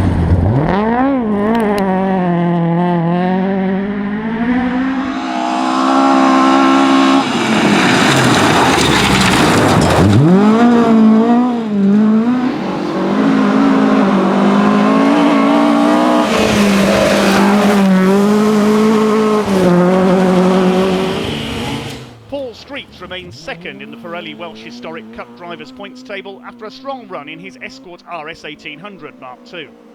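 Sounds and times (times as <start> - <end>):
rally car engine revving: 0.0 - 29.9.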